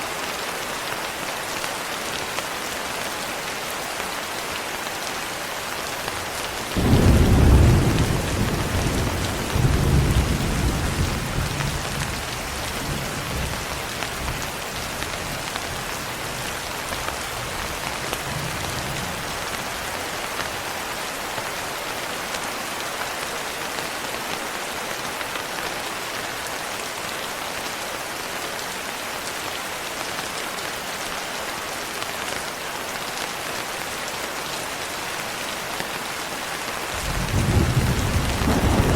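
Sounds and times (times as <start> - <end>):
steady rain: 0.0 - 38.9
thunder clap and rumble: 6.8 - 14.4, 37.0 - 38.9.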